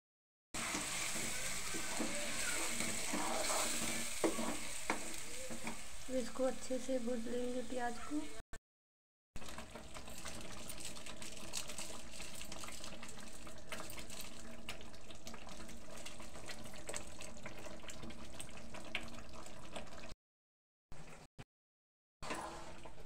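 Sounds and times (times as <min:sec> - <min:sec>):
masala sizzling with crackles and pops: 0:00.6 - 0:08.0, 0:09.4 - 0:20.2.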